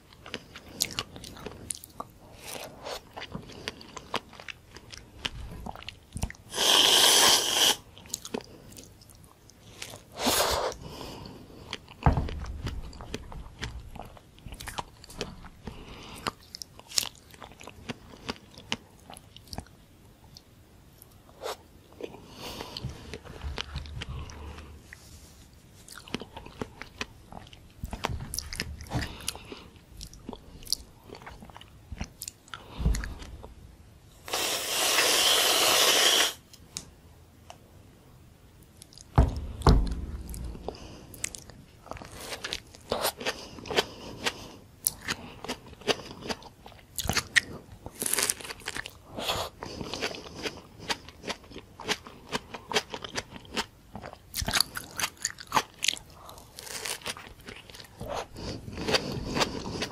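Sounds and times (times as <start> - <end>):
biting and wet chewing: 0.0 - 34.5, 38.6 - 59.9
dull knocks: 12.0 - 14.1, 39.2 - 41.0
whipped cream can spraying: 34.3 - 36.4.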